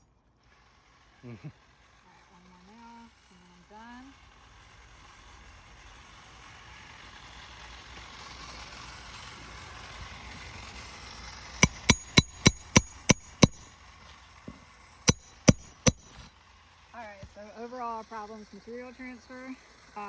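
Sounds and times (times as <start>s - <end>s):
hammer striking roofing nail: 11.6s - 13.7s, 15.1s - 16.2s.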